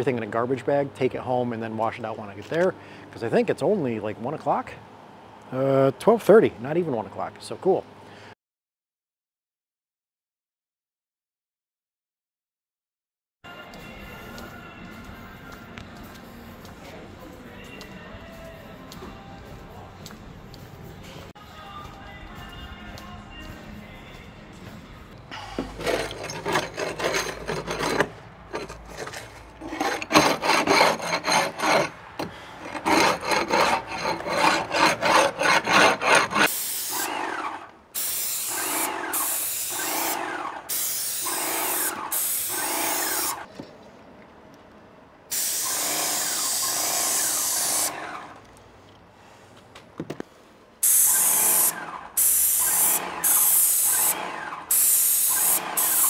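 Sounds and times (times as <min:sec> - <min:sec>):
scraping strokes on wood: 0:25.5 - 0:37.6
paint sprayer hissing bursts: 0:36.5 - 0:37.4, 0:38.0 - 0:43.4, 0:45.3 - 0:48.1, 0:50.8 - 0:56.0.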